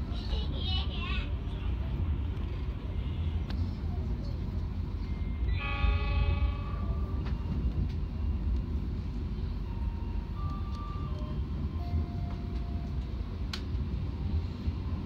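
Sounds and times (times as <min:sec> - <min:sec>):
train rumble from inside: 0:00.0 - 0:15.0
train horn: 0:05.5 - 0:07.1.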